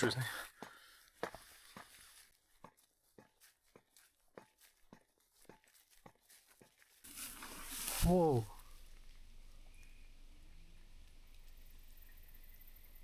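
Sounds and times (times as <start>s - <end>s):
footsteps on trail: 0.0s - 8.6s.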